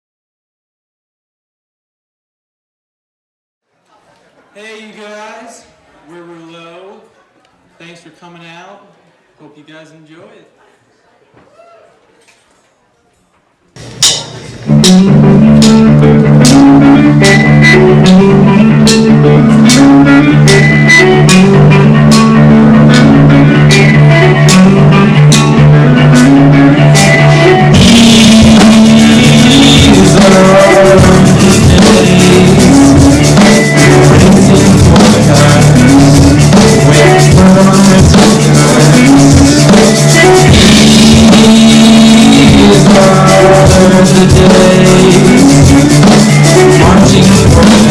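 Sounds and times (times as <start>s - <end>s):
live rock band playing: 13.8s - 47.9s.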